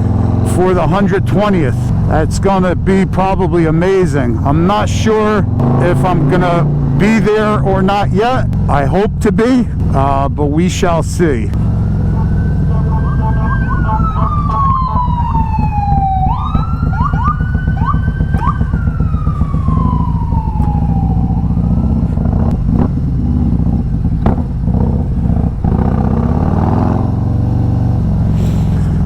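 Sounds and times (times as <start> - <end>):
motorcycle engine rumble: 0.0 - 29.0
emergency vehicle siren wailing: 11.5 - 23.3.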